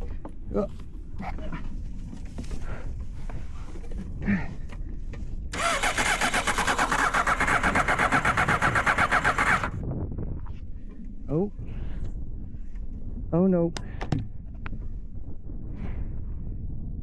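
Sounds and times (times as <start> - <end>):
starter cranking engine: 5.6 - 9.8.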